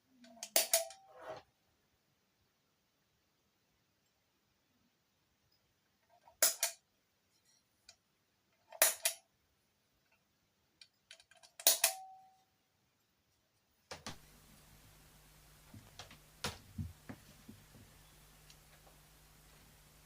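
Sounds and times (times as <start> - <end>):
low electrical hum: 11.9 - 20.0.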